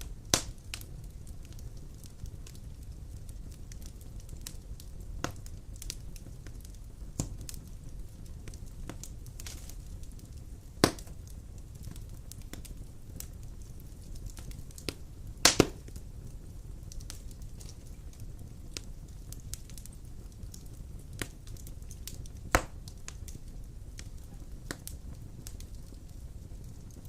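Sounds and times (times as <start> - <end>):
burning logs crackling: 0.0 - 27.0
fireplace flames rumbling: 0.0 - 27.0
sharp pops of burning wood: 0.0 - 27.0.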